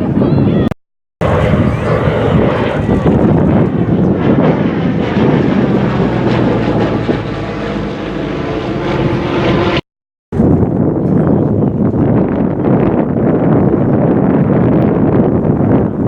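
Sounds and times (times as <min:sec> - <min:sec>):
wind on microphone: 0:00.0 - 0:16.0
propeller aircraft engine drone: 0:01.2 - 0:09.8.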